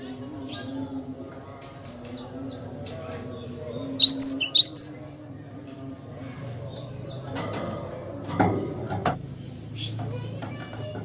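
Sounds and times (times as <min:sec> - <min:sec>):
bird chirping: 0:03.9 - 0:05.0.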